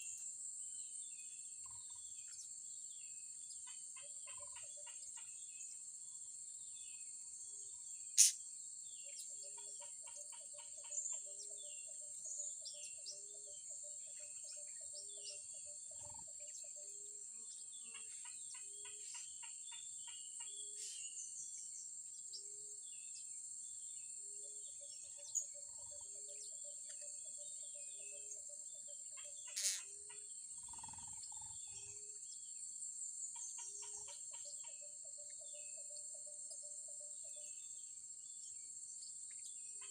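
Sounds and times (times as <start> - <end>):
high insect drone: 7.5 - 8.6, 29.2 - 33.0
parrots squeaky chirps: 29.5 - 29.9.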